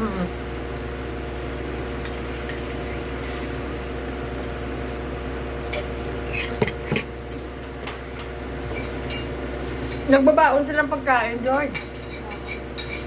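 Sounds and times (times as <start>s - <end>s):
tableware clinking: 6.3s - 7.1s, 11.4s - 13.0s.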